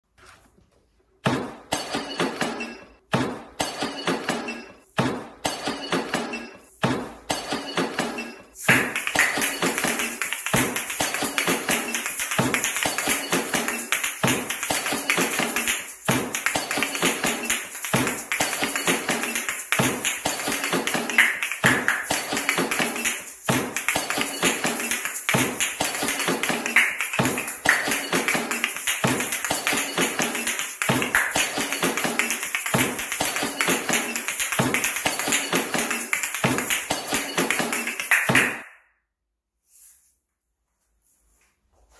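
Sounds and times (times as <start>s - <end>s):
shaker shells clicking and rattling: 5.4s - 38.6s.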